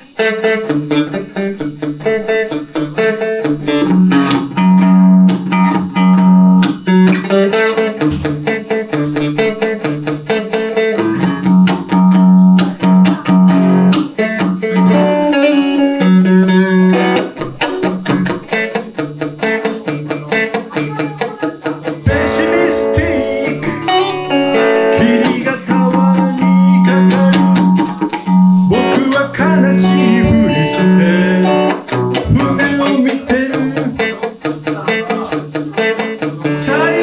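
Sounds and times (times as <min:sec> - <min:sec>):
electric guitar playing: 0:00.0 - 0:37.0
low bass notes: 0:24.9 - 0:33.0.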